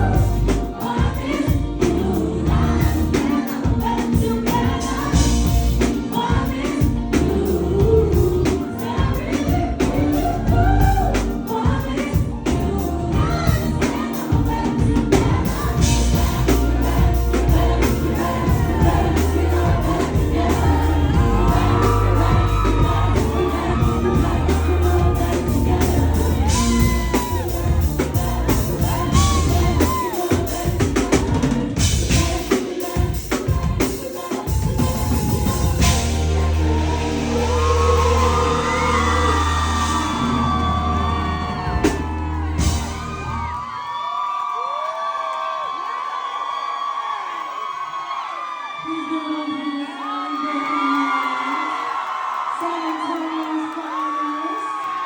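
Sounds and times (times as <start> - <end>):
backing vocals: 0.0 - 43.5
band with drums and heavy bass: 0.0 - 43.6
woman singing lead: 0.0 - 43.6, 48.7 - 55.0.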